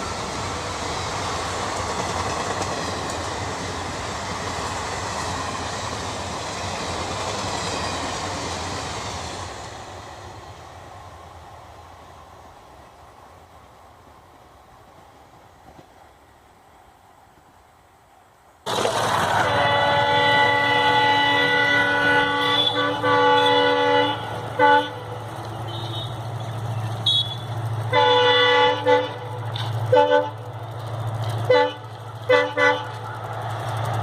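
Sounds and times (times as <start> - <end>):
train rumble: 0.0 - 34.0
locomotive horn blasts: 19.3 - 26.3, 27.0 - 30.5, 31.4 - 33.1.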